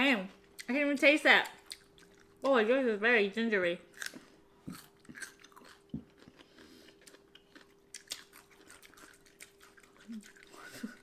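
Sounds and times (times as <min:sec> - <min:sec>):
pickled ginger being chewed: 0:01.4 - 0:02.5, 0:03.9 - 0:11.0.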